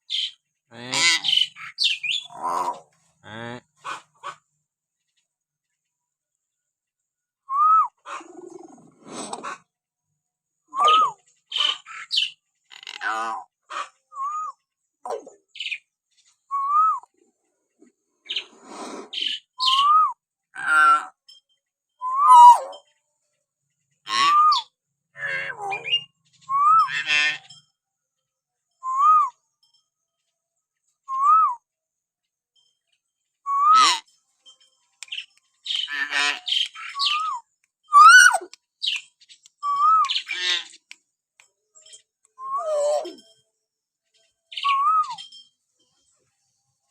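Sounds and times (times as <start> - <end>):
harsh chattering bird calls: 0.0 - 5.8, 10.8 - 16.5, 17.5 - 19.9, 22.3 - 27.8, 32.6 - 43.4, 44.1 - 46.2
rasping bird squawk: 0.1 - 4.4, 10.8 - 14.0, 22.3 - 22.8, 24.1 - 26.0, 35.6 - 39.0, 39.6 - 40.9
myna whistling: 7.5 - 8.0, 10.7 - 11.2, 14.1 - 14.6, 16.5 - 17.1, 19.6 - 20.2, 22.0 - 22.7, 26.5 - 26.9, 28.8 - 29.4, 33.4 - 33.8, 37.0 - 38.4, 39.6 - 40.2, 42.4 - 43.2, 44.6 - 45.3
bird whistles rising and falling: 22.0 - 22.6, 37.0 - 38.4.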